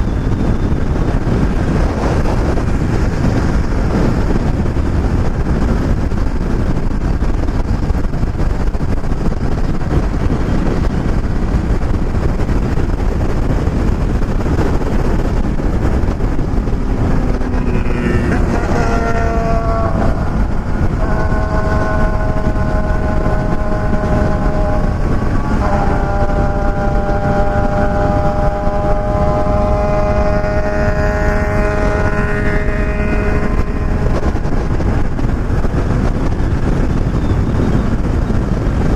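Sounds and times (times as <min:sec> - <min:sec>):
motorcycle engine accelerating: 0:00.0 - 0:38.8
wind rush on microphone: 0:00.0 - 0:38.9.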